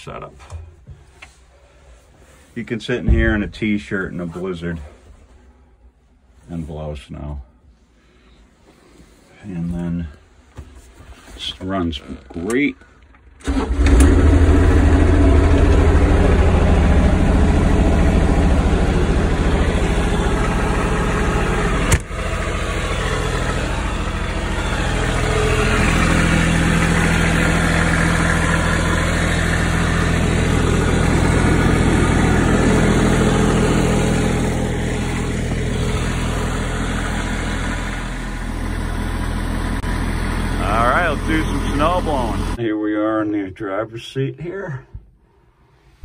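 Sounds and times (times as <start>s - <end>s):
diesel engine running: 2.9s - 3.8s, 13.4s - 42.6s.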